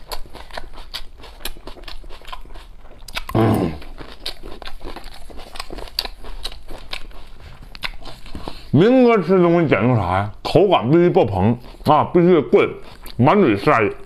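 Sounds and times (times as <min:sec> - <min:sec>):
close-up chewing: 0:00.0 - 0:08.8, 0:11.3 - 0:14.0
mouth clicks: 0:03.1 - 0:03.9
person humming: 0:03.3 - 0:03.8.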